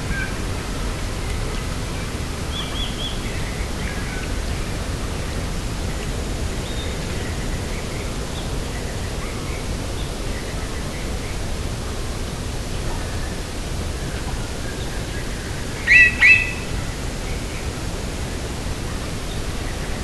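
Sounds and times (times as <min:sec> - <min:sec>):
small birds chirping: 0:00.1 - 0:06.0, 0:15.6 - 0:16.7.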